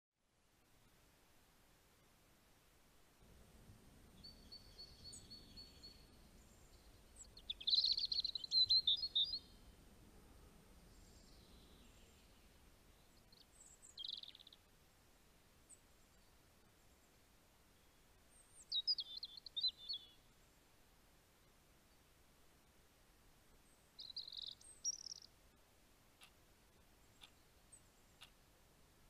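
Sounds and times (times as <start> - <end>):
faint low background noise: 0.2 - 29.0
birds chirping and trilling: 4.2 - 9.6, 13.1 - 14.6, 18.4 - 20.1, 24.0 - 25.3.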